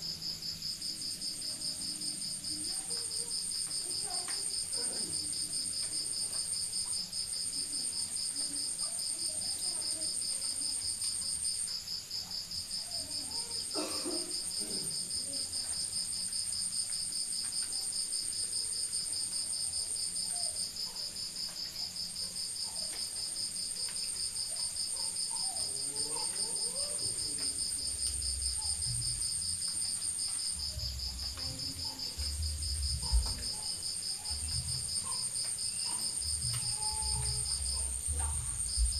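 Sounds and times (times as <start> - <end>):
crickets trilling: 0.0 - 38.9
higher cricket trill: 24.7 - 38.9.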